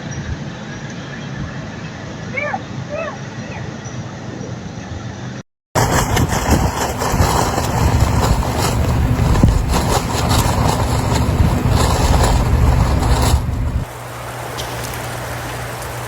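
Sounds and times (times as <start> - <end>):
vehicle engine running: 5.8 - 13.9
loud rushing noise with flutters: 5.8 - 16.0.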